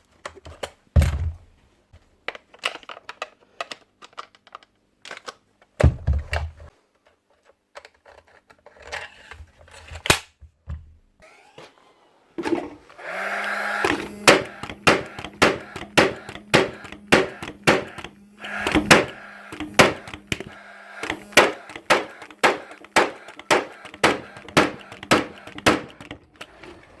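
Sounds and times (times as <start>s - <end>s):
fan motor humming: 11.2s - 27.0s
nail gun firing: 12.5s - 26.5s.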